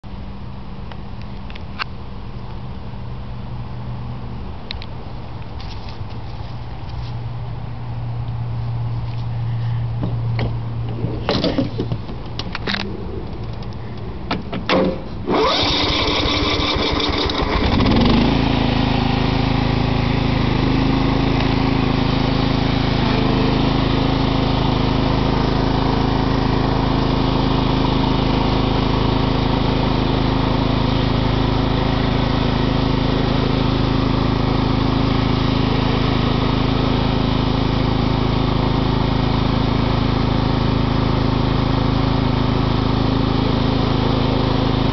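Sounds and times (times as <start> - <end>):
lawn mower engine cranking and running: 10.1 - 44.9.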